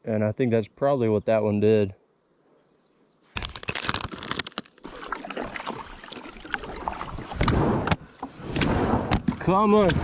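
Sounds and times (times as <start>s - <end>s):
water sloshing around kayak: 3.8s - 8.5s.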